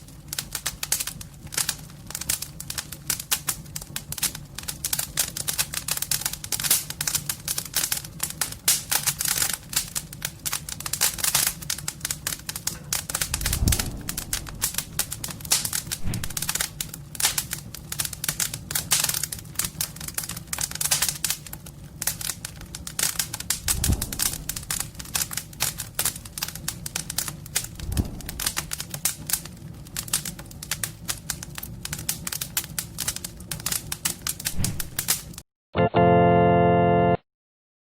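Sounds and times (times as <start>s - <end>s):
fire crackling and popping: 0.0s - 35.4s
steady low hum: 12.5s - 17.4s, 23.5s - 26.1s, 27.2s - 29.2s
dull low thumps: 12.9s - 16.7s, 23.6s - 25.1s, 27.6s - 28.8s.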